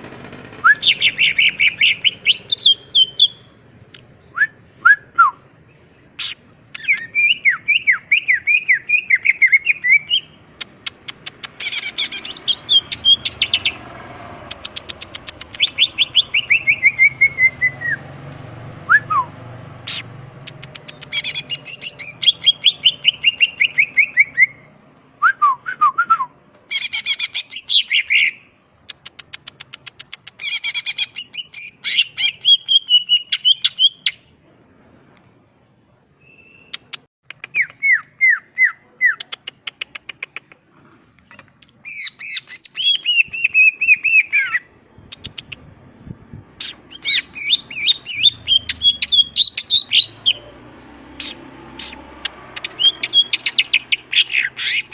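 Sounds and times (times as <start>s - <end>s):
bird singing chirps and whistles: 0.6s - 3.5s, 6.2s - 10.4s, 11.6s - 13.8s, 15.5s - 18.0s, 20.7s - 28.5s, 30.4s - 34.3s, 36.2s - 36.8s, 37.5s - 39.2s, 41.9s - 44.7s, 46.6s - 50.5s, 52.6s - 54.9s.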